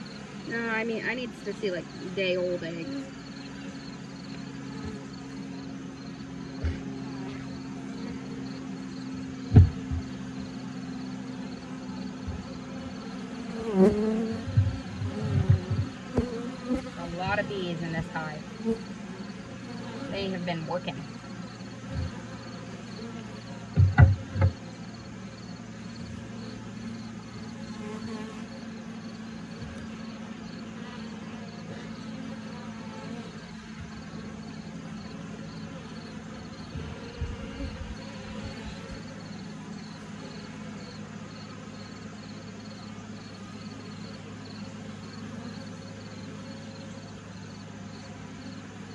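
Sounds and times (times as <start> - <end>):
bees buzzing: 0.0 - 48.9
knock: 9.5 - 10.1, 23.8 - 24.6
quick thumps: 9.5 - 10.2, 23.8 - 24.6.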